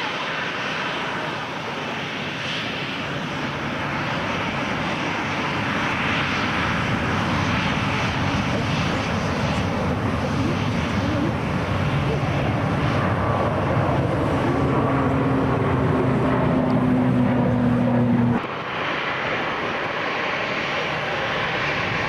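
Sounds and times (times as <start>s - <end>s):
airliner engines rushing: 0.0s - 22.0s.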